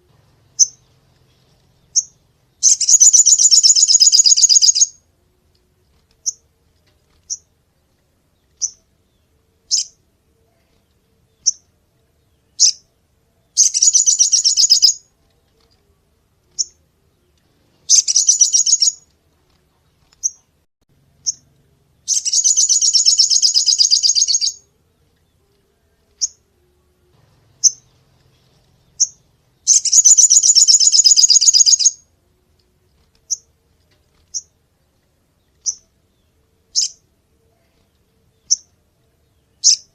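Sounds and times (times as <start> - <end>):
shrill rattling bird trills: 0.5 - 5.0, 13.6 - 15.1, 17.8 - 19.1, 22.0 - 24.7, 27.6 - 32.0
bird high chips: 2.0 - 5.0, 13.6 - 15.0, 17.9 - 19.1, 22.1 - 24.6, 29.0 - 32.0.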